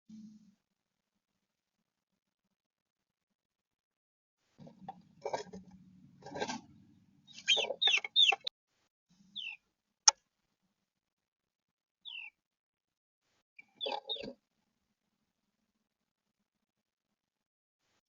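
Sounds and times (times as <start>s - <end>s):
birds rustling in nest: 4.6s - 8.4s.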